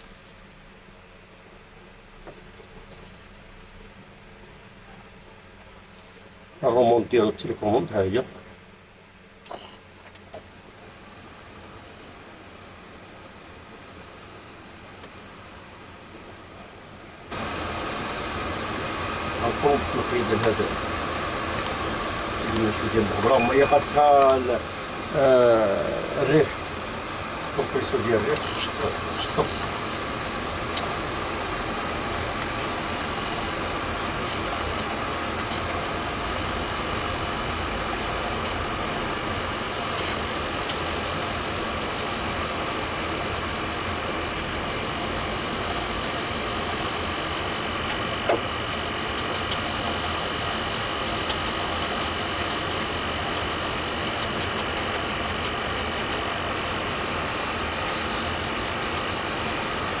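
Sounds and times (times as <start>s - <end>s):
electric machine hum: 17.2s - 60.0s
faint whine: 17.3s - 60.0s.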